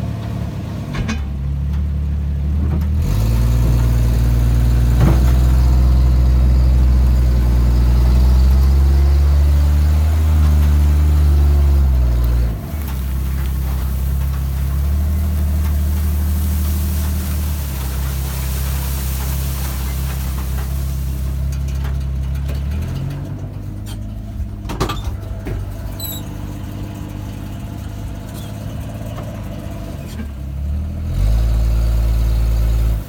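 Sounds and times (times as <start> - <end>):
vehicle engine revving under load: 30.6 - 33.0.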